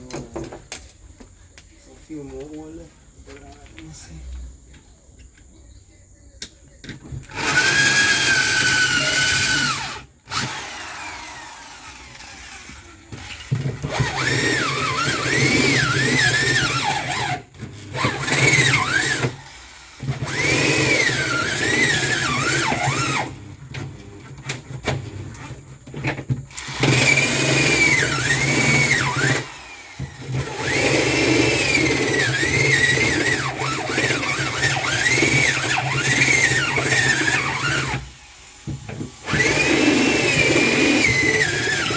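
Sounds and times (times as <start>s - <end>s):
power drill squealing on metal: 7.2s - 23.6s, 26.5s - 38.2s, 39.2s - 41.9s.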